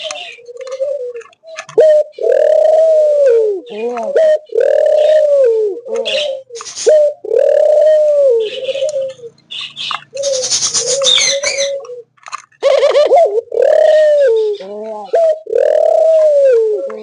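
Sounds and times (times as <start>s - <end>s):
doves cooing: 0.0s - 17.0s
higher chirping: 6.1s - 14.6s.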